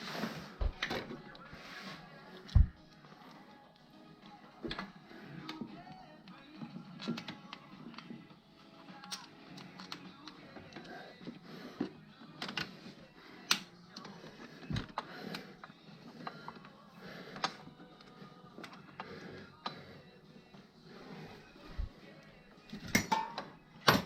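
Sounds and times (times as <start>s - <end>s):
hand tools clinking on metal: 22.8s - 24.0s.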